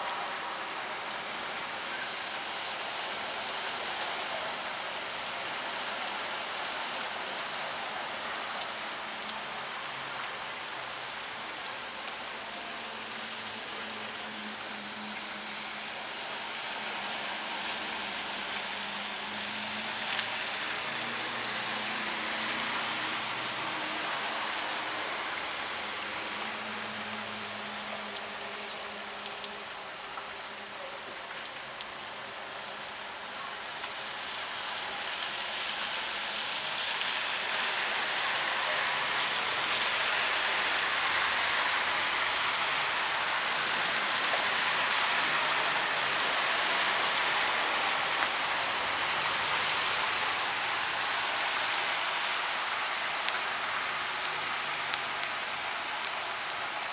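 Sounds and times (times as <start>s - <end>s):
heavy rain on flooded street: 0.0s - 56.9s.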